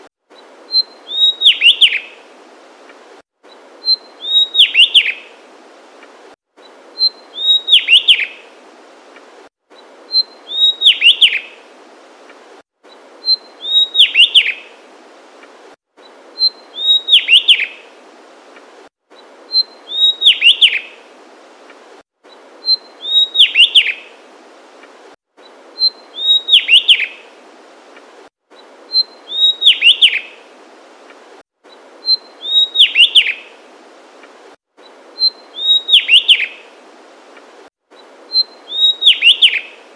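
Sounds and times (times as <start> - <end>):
faint hiss: 0.0 - 39.9
bird singing falling whistles: 0.7 - 2.0, 3.8 - 5.2, 7.0 - 8.3, 10.1 - 11.4, 13.2 - 14.6, 16.4 - 17.7, 19.5 - 20.8, 22.6 - 24.0, 25.8 - 27.1, 28.9 - 30.3, 32.0 - 33.4, 35.2 - 36.6, 38.3 - 39.8.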